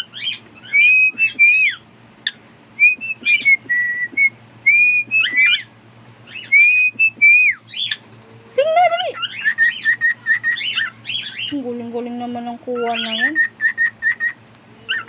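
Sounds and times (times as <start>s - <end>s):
cockatiel whistling a tune: 0.1s - 1.8s, 2.8s - 5.7s, 6.3s - 8.0s, 9.2s - 11.4s, 12.8s - 15.0s.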